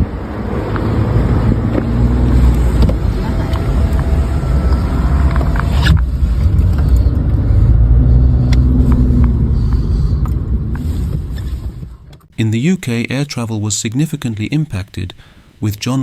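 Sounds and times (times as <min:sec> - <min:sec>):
vehicle engine and road rumble: 0:00.0 - 0:13.4.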